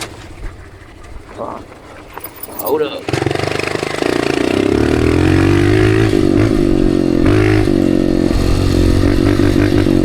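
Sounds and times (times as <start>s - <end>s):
dirt bike engine revving: 3.0s - 10.0s.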